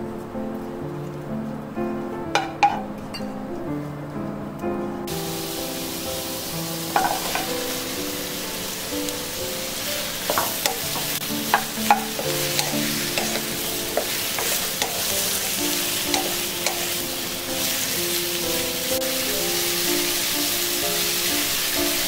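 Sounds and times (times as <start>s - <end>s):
zucchini sizzling in a frying pan: 5.1s - 22.0s.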